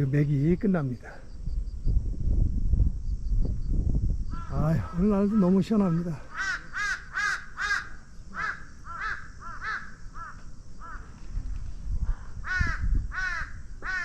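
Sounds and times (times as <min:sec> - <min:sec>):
crows cawing: 0:04.3 - 0:11.2, 0:12.1 - 0:14.0.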